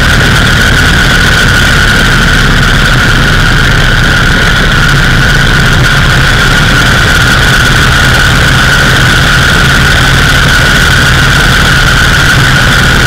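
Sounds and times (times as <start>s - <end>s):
high-pitched whine: 0.0s - 13.0s
motorcycle engine running: 0.0s - 13.0s
wind rushing over microphone: 0.0s - 13.0s.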